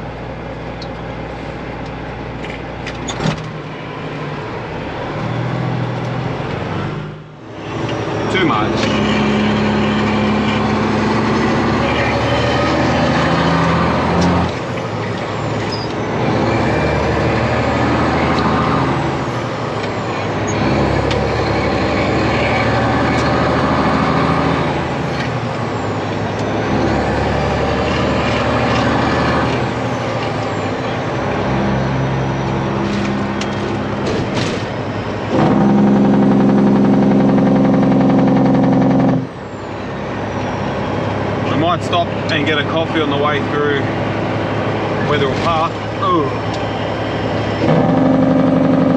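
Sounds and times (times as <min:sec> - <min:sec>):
diesel truck engine running: 0:00.0 - 0:48.9
loud steady note: 0:35.3 - 0:39.3.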